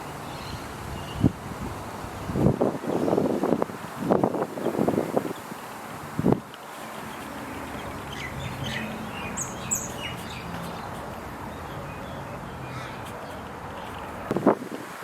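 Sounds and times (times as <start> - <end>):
birds chirping: 6.6 - 14.4.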